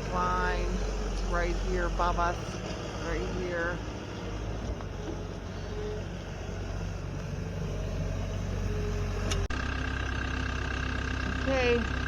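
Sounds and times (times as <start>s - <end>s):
farm machine engine humming: 0.0s - 12.0s.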